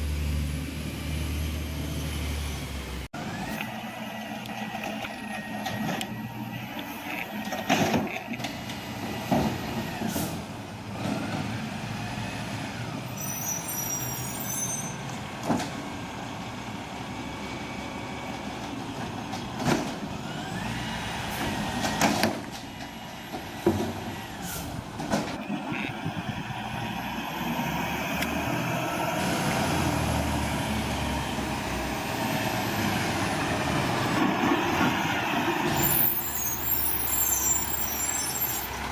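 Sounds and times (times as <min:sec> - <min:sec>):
hydraulic whines: 0:03.2 - 0:10.4, 0:12.2 - 0:15.2, 0:25.4 - 0:38.9.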